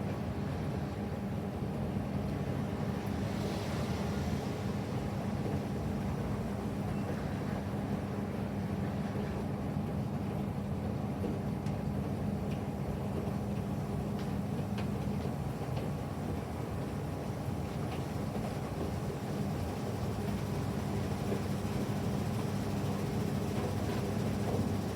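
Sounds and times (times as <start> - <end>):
washing machine motor humming: 16.6 - 24.9.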